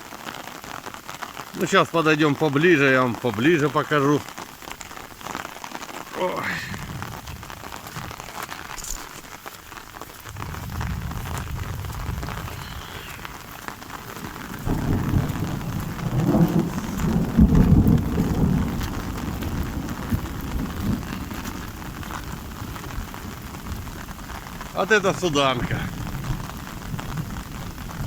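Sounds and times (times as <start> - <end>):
steady rain falling: 0.0 - 28.0
low rumble of thunder: 6.4 - 8.2, 10.2 - 24.8, 25.6 - 28.0.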